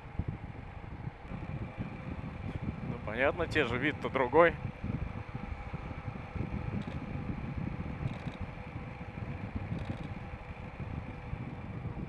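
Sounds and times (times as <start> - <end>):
motorcycle engine running: 0.0 - 12.0
wind buffeting microphone: 0.0 - 12.0.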